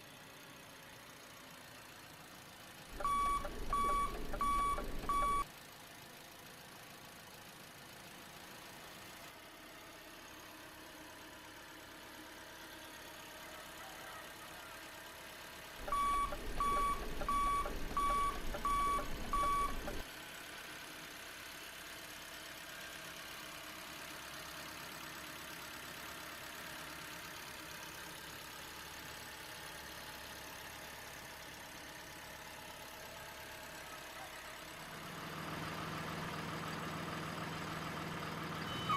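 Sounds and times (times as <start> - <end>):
short high electronic beeps: 3.0 - 5.4, 15.8 - 20.0, 38.7 - 38.9
faint steady hum: 15.8 - 20.0.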